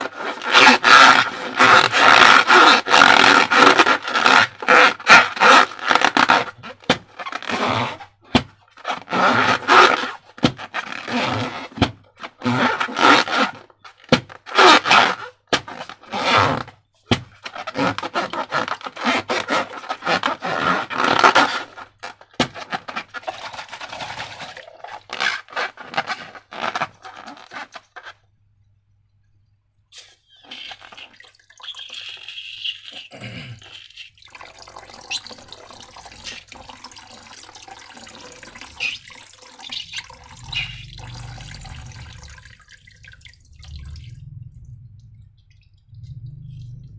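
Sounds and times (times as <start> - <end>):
hands squelching slime and balloons: 37.9 - 44.1.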